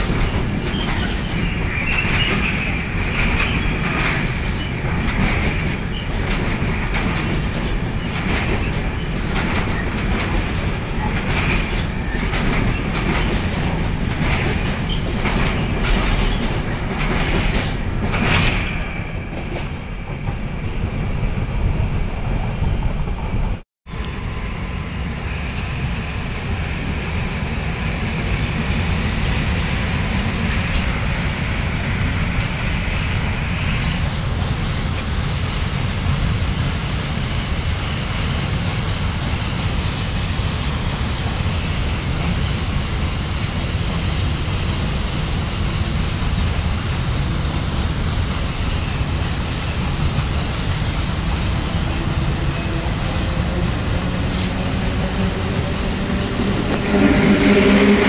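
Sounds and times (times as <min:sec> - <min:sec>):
wheels clicking over rail joints: 0:00.0 - 0:20.5
freight train rumbling past: 0:00.0 - 0:58.0
high wheel squeal: 0:00.6 - 0:04.8.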